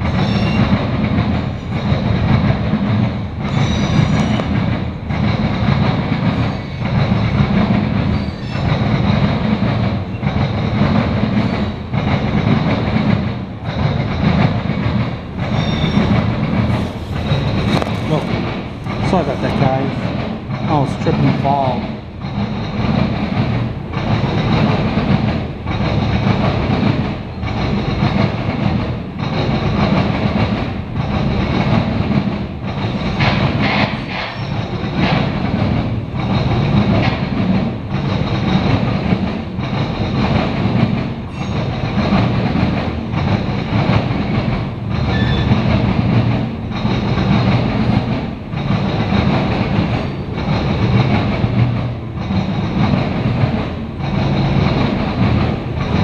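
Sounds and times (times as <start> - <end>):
train wheels clickety-clack: 0.0 - 56.0.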